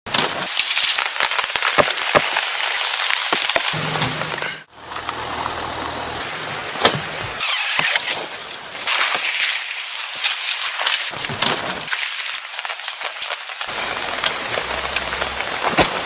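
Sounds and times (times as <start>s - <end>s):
rain falling: 8.3s - 16.0s.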